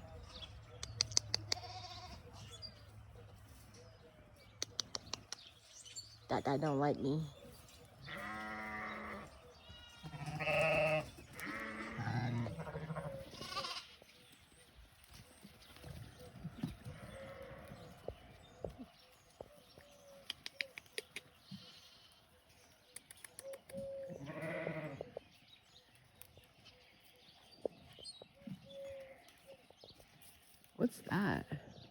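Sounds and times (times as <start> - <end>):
sheep bleating: 1.4 - 2.4, 8.1 - 14.0, 24.2 - 25.1.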